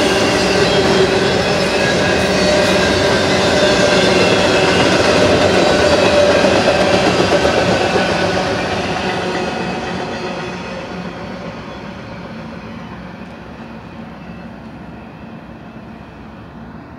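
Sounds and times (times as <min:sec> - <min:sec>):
train wheels rumbling on rails: 0:00.0 - 0:16.9.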